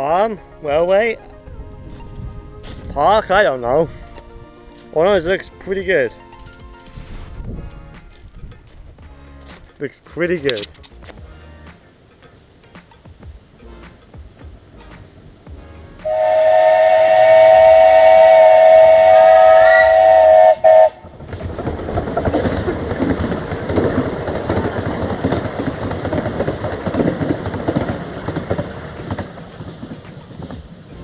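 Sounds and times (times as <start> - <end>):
rough rushing noise: 12.8 - 31.0
locomotive whistle chord: 15.5 - 21.1.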